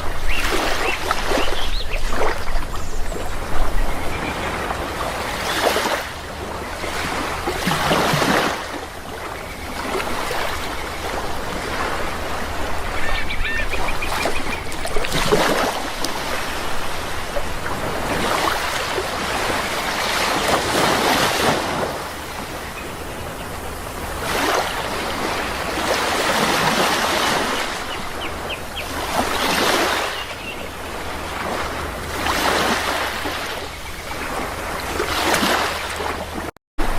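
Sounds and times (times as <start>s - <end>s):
sea waves washing in: 0.0s - 36.9s
short bird calls: 12.9s - 14.8s.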